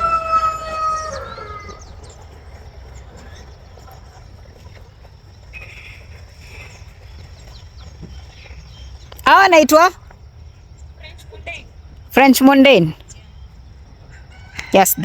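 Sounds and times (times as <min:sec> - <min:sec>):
rooster crowing: 0:00.0 - 0:02.1, 0:14.1 - 0:15.0.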